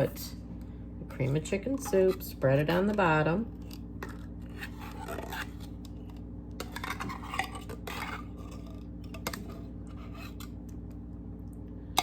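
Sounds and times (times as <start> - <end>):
spoon scraping and clinking: 6.6 - 10.5.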